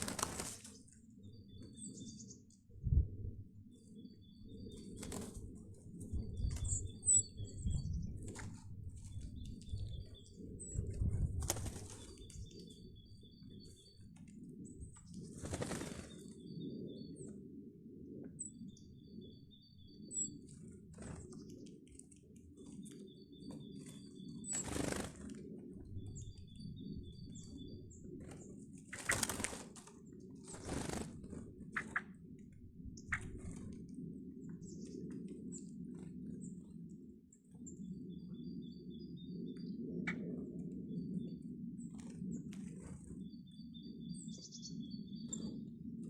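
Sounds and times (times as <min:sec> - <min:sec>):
bird wingbeats: 0:00.0 - 0:01.0, 0:04.6 - 0:16.4, 0:20.4 - 0:26.2, 0:27.7 - 0:34.0.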